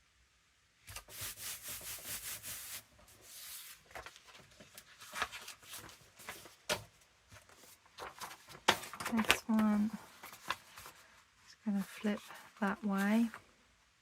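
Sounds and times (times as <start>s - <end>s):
paper rubbing and scraping: 0.9s - 6.6s, 10.0s - 11.1s
paper rustling: 0.9s - 13.4s.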